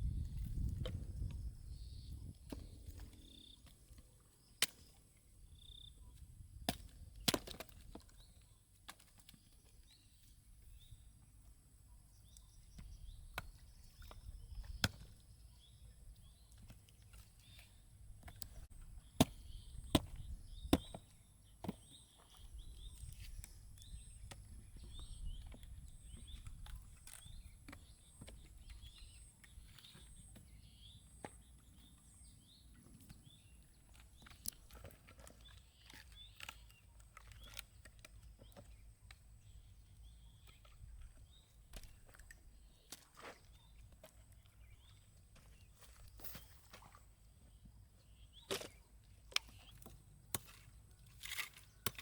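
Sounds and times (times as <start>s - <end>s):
sharp knocks and cracks: 6.7s - 8.1s.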